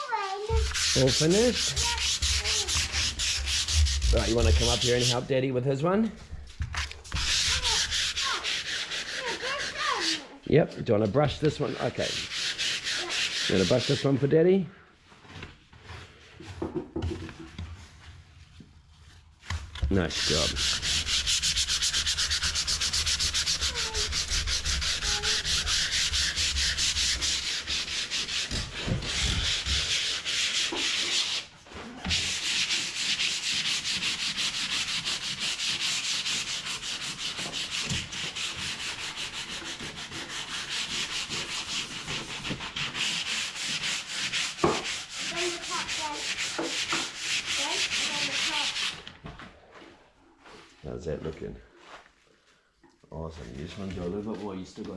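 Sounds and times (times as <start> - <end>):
sandpaper rasping on wood: 0.0 - 5.3, 7.1 - 10.3, 11.6 - 14.2, 19.9 - 49.0.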